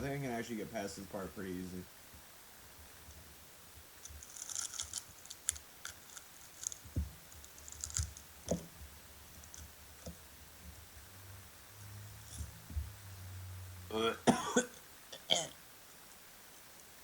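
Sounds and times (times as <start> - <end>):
shell crunching while chewed: 4.1 - 6.8, 7.4 - 8.2
soft low thumps: 6.8 - 11.1, 12.3 - 13.2.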